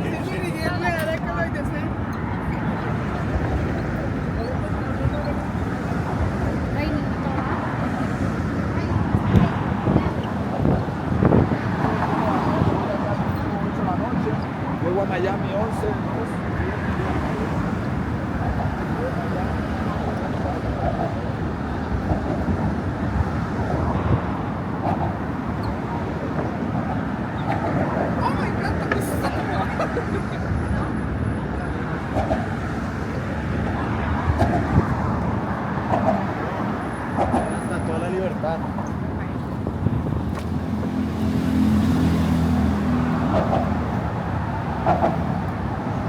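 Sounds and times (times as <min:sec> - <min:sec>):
road traffic noise: 0:00.0 - 0:46.0
vehicle engine hum: 0:00.0 - 0:46.0.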